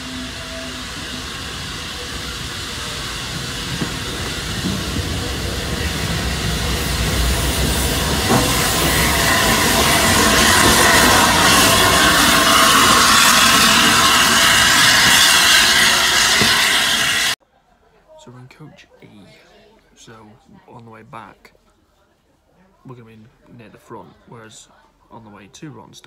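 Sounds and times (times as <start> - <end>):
steam hissing: 0.0 - 17.4
train rumbling: 0.0 - 17.4.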